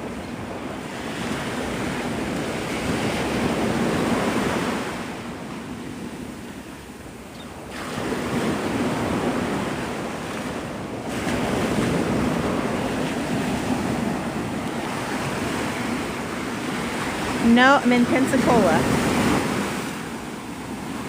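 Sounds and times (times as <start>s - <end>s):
wind buffeting microphone: 0.0s - 21.0s
surf breaking on beach: 7.6s - 21.0s.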